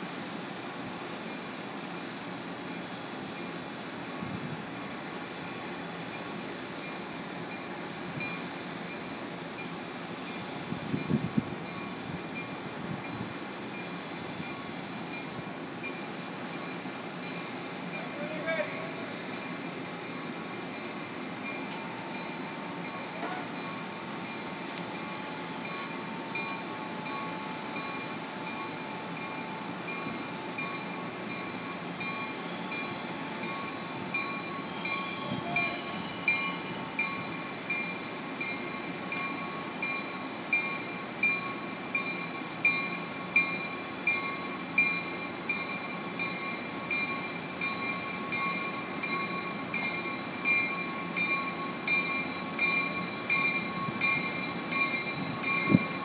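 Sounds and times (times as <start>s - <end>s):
train rumble: 0.0s - 56.0s
steady ringing: 21.5s - 56.0s.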